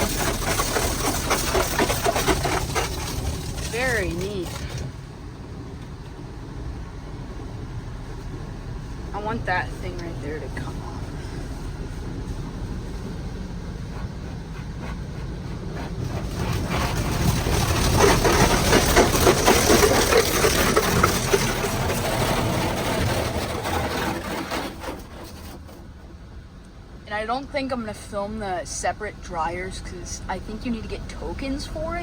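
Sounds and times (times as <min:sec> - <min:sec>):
water spraying onto car: 0:00.0 - 0:05.1, 0:08.7 - 0:24.2.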